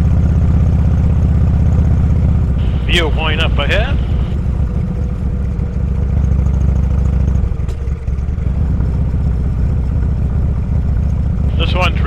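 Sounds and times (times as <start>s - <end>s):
motorcycle engine rumbling: 2.6s - 9.6s, 11.3s - 12.0s.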